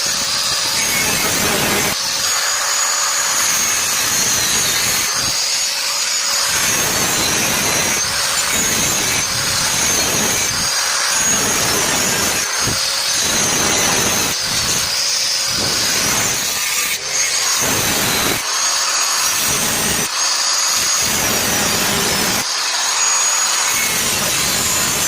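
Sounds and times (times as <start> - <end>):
power tool high whine: 0.0 - 25.0.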